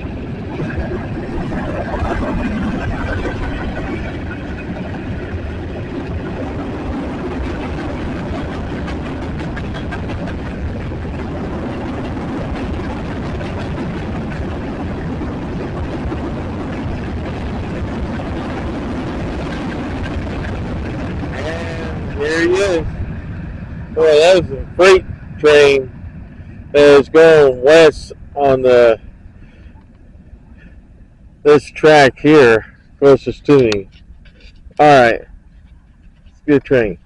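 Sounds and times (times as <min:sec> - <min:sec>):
train wheels rumbling on rails: 0:00.0 - 0:25.9.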